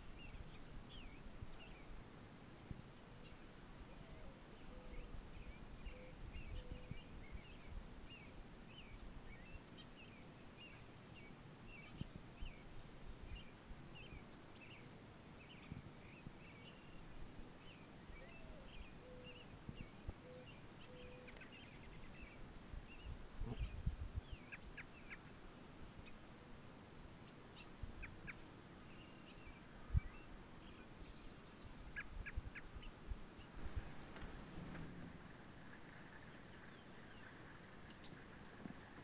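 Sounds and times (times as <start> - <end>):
bird cooing call: 3.9 - 5.1, 5.9 - 6.9, 18.2 - 19.4, 20.2 - 21.3
low background rumble: 33.6 - 39.0.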